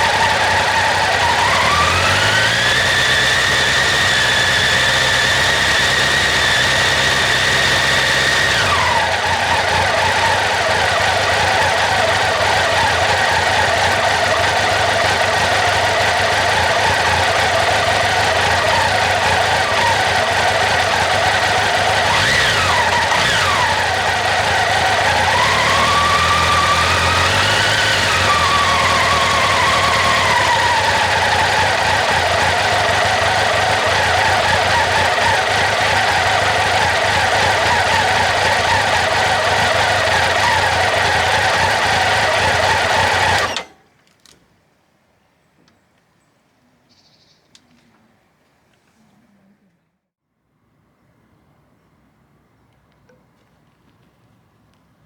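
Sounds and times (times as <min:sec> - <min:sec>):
motorcycle engine running: 0:00.0 - 0:43.8.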